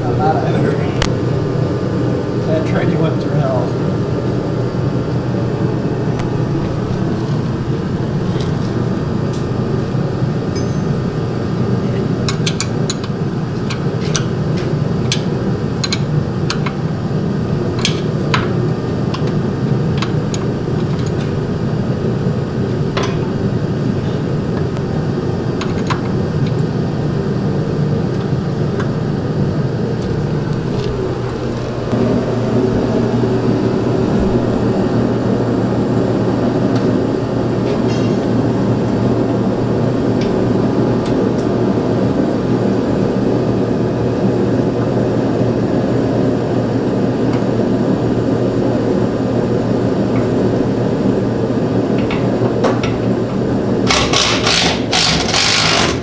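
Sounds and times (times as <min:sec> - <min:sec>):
low mechanical drone: 0:00.0 - 0:56.0
metallic clinks of tools: 0:10.5 - 0:11.2.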